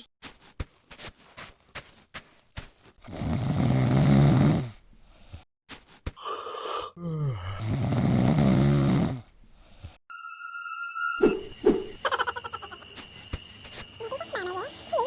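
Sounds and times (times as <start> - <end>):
person snoring: 3.0 - 4.8, 6.2 - 9.3.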